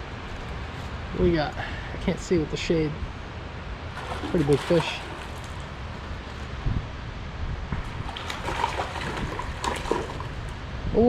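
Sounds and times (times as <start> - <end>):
flowing river water: 3.1 - 10.8
fish splashing at surface: 3.9 - 6.6, 7.9 - 10.6.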